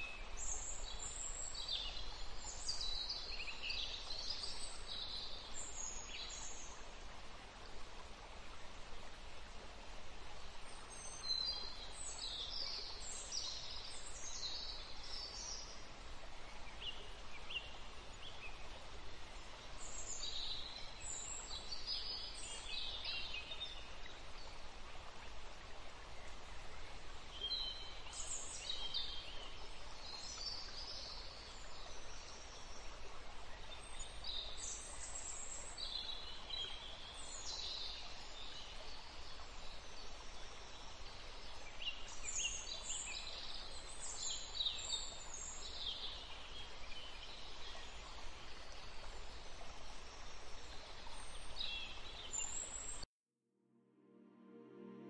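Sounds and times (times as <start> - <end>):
steady outdoor hiss: 0.0 - 53.0, 53.9 - 55.0.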